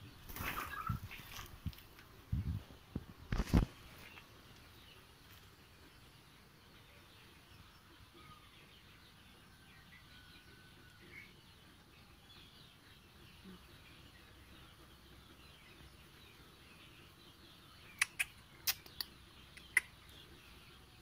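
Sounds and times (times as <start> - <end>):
low background noise: 0.0 - 21.0.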